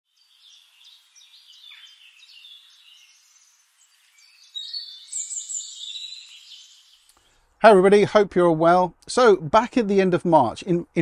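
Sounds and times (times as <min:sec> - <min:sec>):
songbirds chirping and singing: 0:00.1 - 0:07.5.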